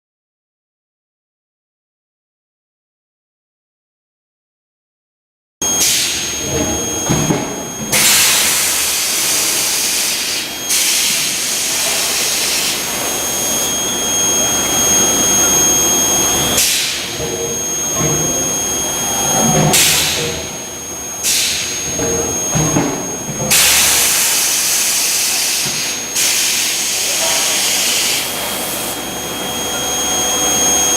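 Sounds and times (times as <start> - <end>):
high-pitched furnace whine: 5.6 - 30.9.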